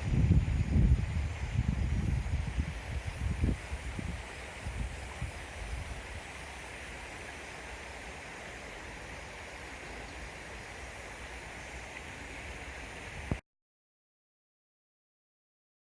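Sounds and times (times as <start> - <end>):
wind rumble on microphone: 0.0 - 6.3, 13.0 - 13.4
stream water flowing: 0.0 - 13.4.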